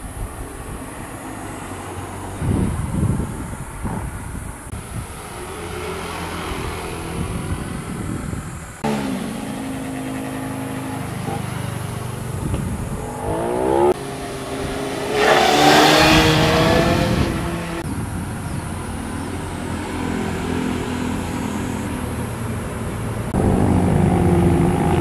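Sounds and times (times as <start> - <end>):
motorcycles revving past: 5.0 - 17.9, 18.5 - 22.6, 23.3 - 25.0.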